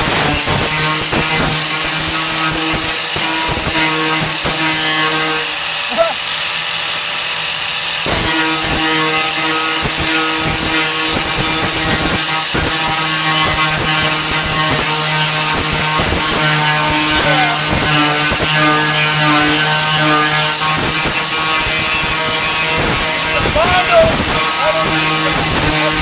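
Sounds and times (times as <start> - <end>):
angle grinder whining: 0.0 - 26.0
grinder wheel scraping sheet metal: 0.0 - 26.0.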